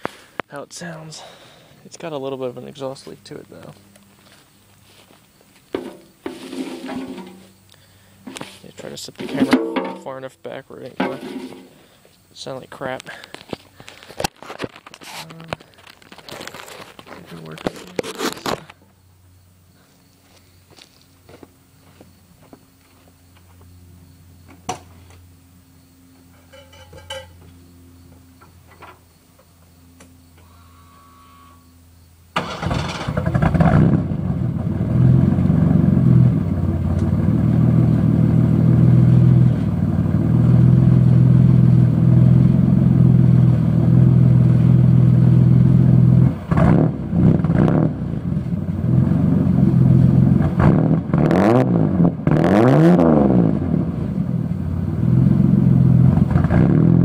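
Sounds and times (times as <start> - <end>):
truck engine starting and revving: 32.3 - 57.0.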